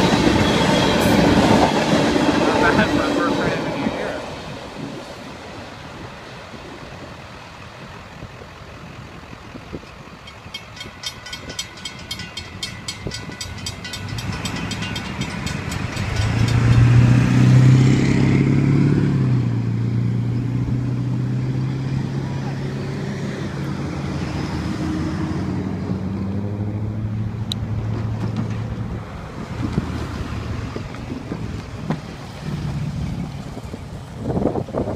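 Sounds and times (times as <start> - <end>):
freight train rumbling: 0.0 - 34.9
crossing bell ringing: 10.2 - 17.3.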